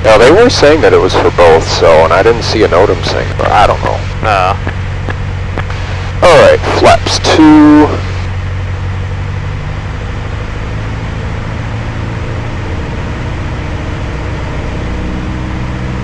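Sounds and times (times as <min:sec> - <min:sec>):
aircraft engine droning: 0:00.0 - 0:16.0.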